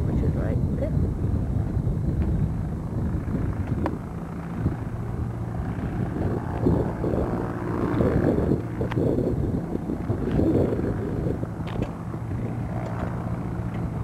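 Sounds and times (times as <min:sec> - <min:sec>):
propeller aircraft engine humming: 0:00.0 - 0:14.0
wind buffeting microphone: 0:00.0 - 0:14.0.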